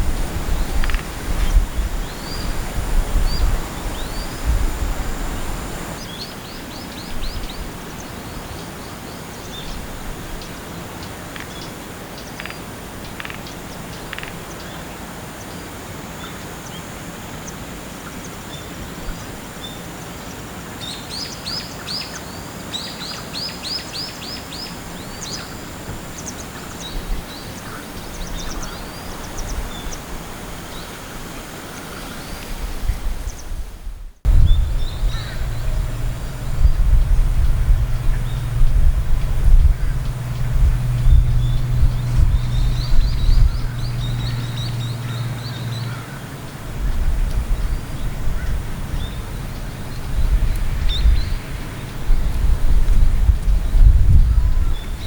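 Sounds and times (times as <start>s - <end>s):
outdoor background hiss: 0.0s - 55.0s
bird calling: 34.3s - 52.2s.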